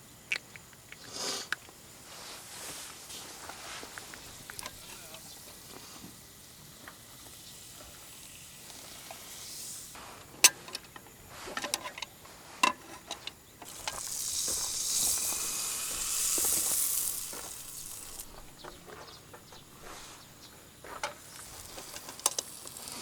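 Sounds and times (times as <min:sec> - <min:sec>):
food sizzling in a pan: 0:03.6 - 0:10.0, 0:13.7 - 0:18.6, 0:21.2 - 0:23.0
metal cooking gear clatter: 0:12.7 - 0:18.8, 0:21.0 - 0:23.0.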